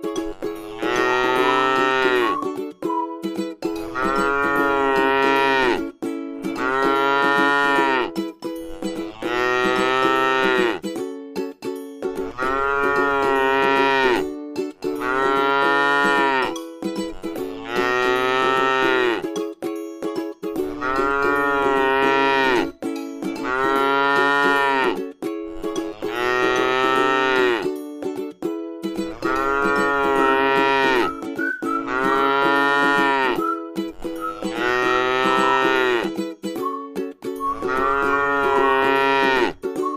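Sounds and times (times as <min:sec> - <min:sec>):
cow mooing: 0:00.6 - 0:02.4, 0:03.9 - 0:05.8, 0:06.6 - 0:08.1, 0:09.0 - 0:10.8, 0:12.3 - 0:14.2, 0:15.0 - 0:16.5, 0:17.5 - 0:19.2, 0:20.7 - 0:22.7, 0:23.4 - 0:25.0, 0:25.9 - 0:27.6, 0:29.1 - 0:31.2, 0:31.8 - 0:33.4, 0:34.3 - 0:36.1, 0:37.6 - 0:39.6.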